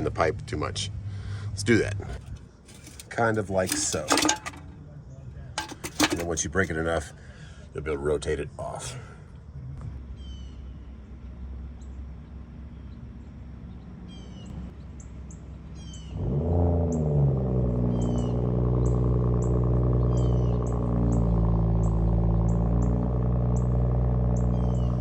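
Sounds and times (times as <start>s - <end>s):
truck engine starting and idling: 0.6s - 4.8s, 11.3s - 25.0s
small birds chirping: 10.1s - 16.2s, 20.0s - 21.2s, 24.4s - 25.0s.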